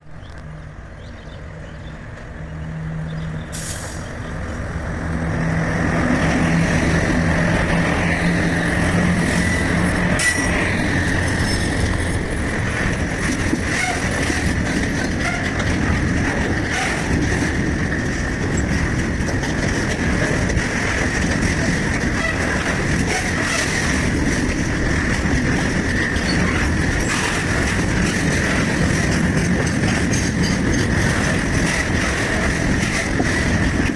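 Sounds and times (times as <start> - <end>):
freight train rumbling past: 0.0 - 33.9.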